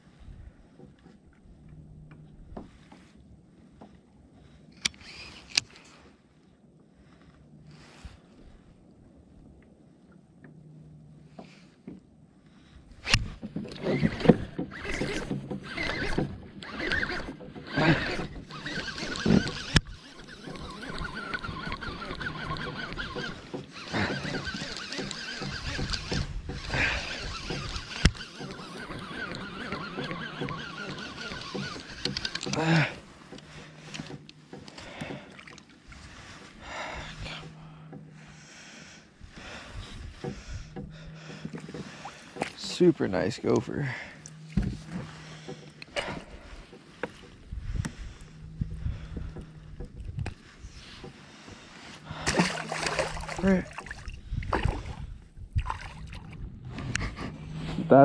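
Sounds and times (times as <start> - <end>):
paddle strokes swishing water: 0.0 - 58.0
small knocks and clicks: 29.2 - 32.6.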